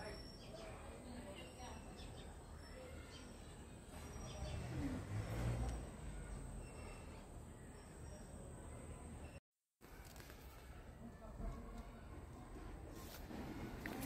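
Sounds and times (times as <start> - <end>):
bird chirps: 0.0 - 5.0.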